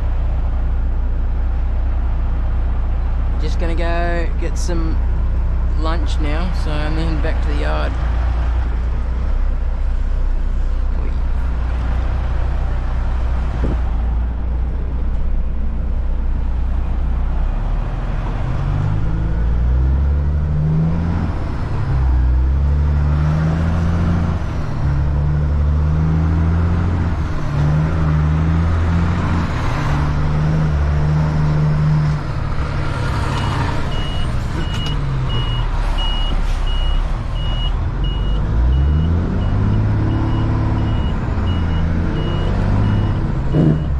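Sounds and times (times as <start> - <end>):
truck diesel engine: 0.0 - 43.9.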